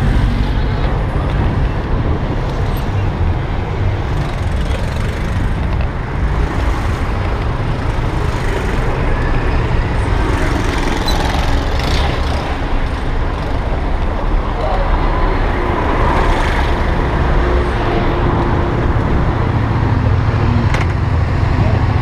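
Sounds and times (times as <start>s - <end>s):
wind noise on microphone: 0.0s - 14.5s
road traffic: 0.0s - 22.0s.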